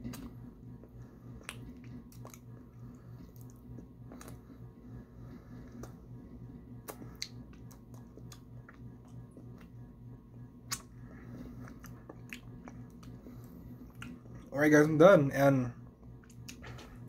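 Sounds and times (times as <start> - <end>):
steady low hum: 0.0 - 17.0
wet chewing mouth clicks: 1.4 - 2.5, 11.6 - 13.2.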